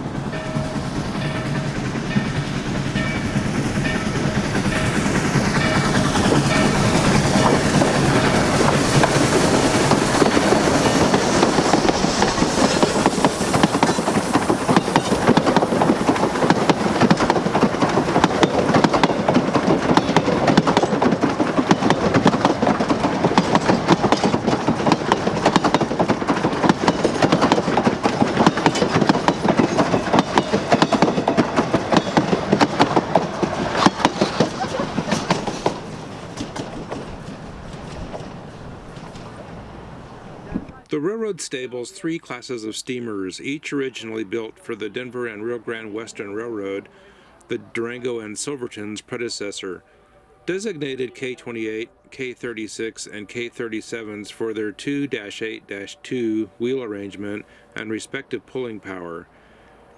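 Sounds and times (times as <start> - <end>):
wheels rattling on rail: 0.0 - 40.9
steam train approaching: 0.0 - 59.9.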